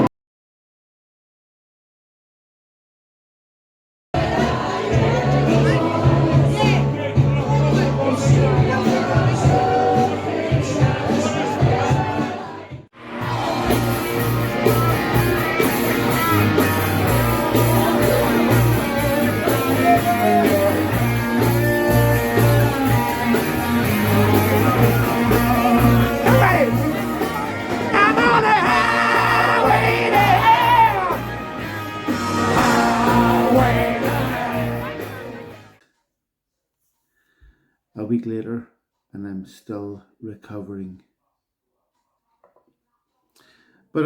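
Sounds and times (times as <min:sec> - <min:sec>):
rock music with singing: 0:04.2 - 0:35.8.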